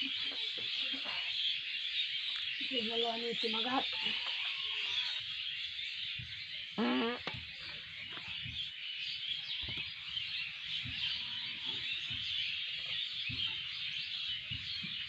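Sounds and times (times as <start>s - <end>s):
birds chirping and twittering: 0.0s - 15.0s
faint low knocks: 9.5s - 15.0s.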